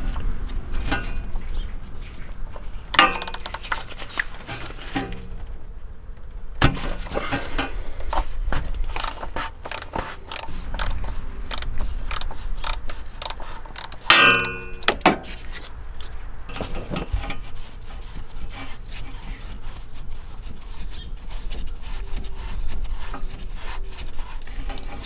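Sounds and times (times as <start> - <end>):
hand tools clattering on metal: 2.9 - 5.4, 8.9 - 15.4
loud ringing metallic clang: 3.0 - 3.5, 13.8 - 15.3.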